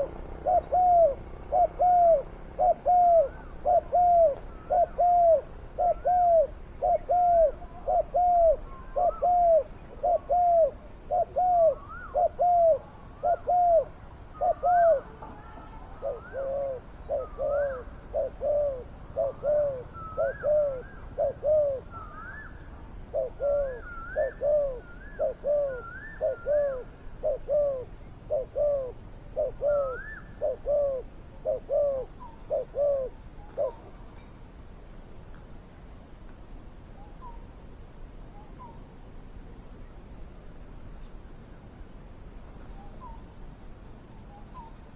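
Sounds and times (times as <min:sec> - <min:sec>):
higher gliding bird call: 0:00.0 - 0:33.9
doves cooing: 0:00.0 - 0:34.0.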